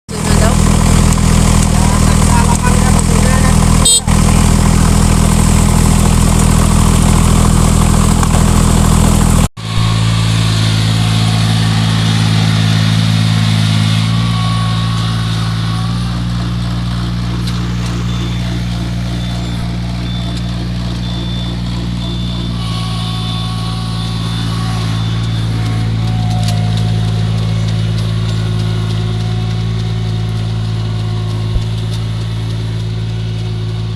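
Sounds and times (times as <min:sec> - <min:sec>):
small engine running: 0:00.1 - 0:33.9.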